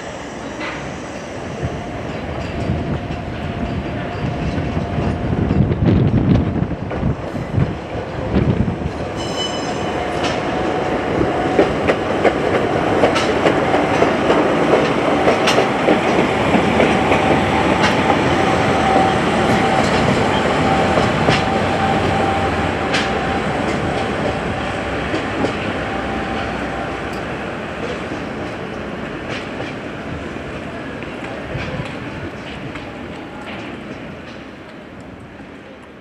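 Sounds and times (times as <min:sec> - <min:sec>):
train wheels clicking over rail joints: 0:10.0 - 0:35.2.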